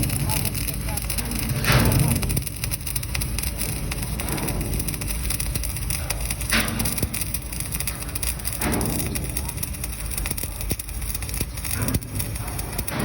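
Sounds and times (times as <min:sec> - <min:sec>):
welding arc crackling: 0:00.0 - 0:13.0.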